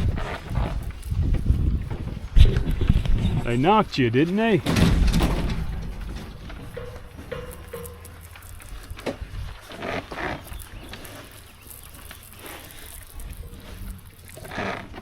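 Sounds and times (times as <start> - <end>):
cows bawling: 5.3 - 15.0.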